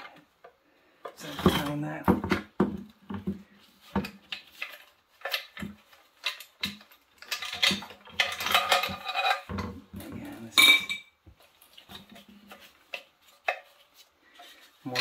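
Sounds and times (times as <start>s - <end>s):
metal tools clinking and knocking: 3.9s - 11.2s.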